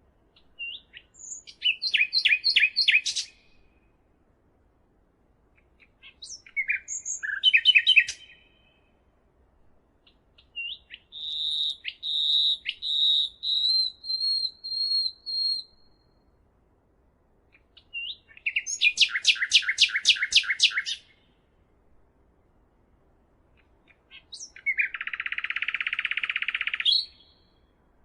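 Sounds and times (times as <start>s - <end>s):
songbird whistled notes: 0.6s - 3.5s, 6.2s - 8.7s, 10.5s - 16.1s, 17.9s - 21.1s, 24.3s - 27.5s.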